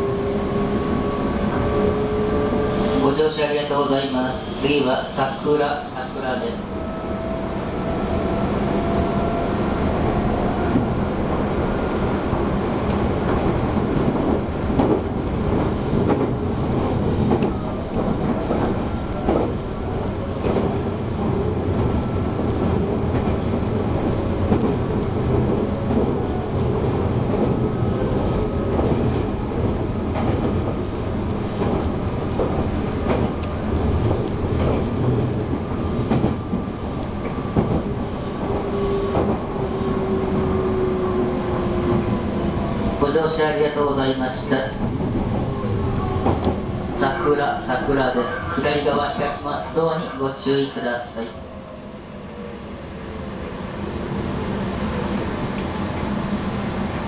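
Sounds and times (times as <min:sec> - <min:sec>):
train wheels rumbling: 0:05.7 - 0:49.6.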